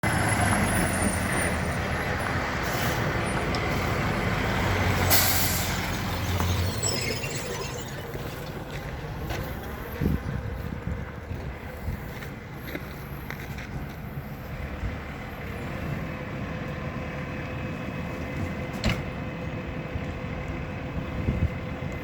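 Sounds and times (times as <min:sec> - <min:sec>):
low engine rumble: 0:00.0 - 0:22.0
loud hiss of air: 0:05.1 - 0:05.8.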